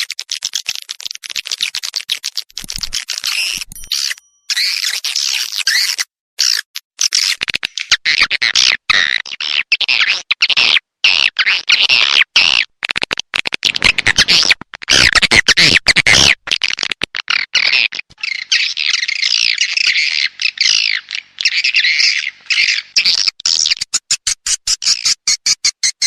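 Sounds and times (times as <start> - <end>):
birds chirping and twittering: 18.2 - 23.7.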